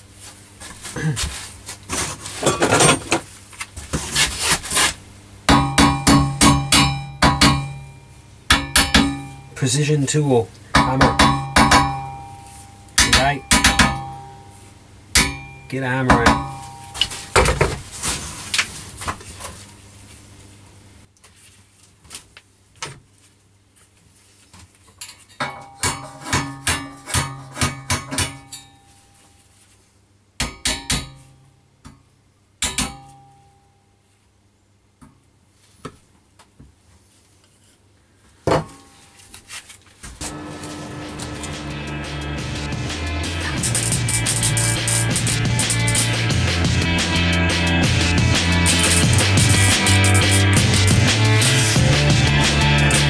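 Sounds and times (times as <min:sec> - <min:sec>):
background music: 0:40.3 - 0:53.0.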